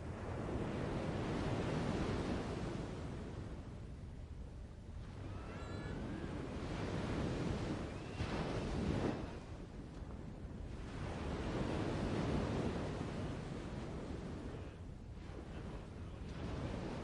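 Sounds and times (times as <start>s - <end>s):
surf washing on shore: 0.0s - 3.8s, 4.9s - 17.0s.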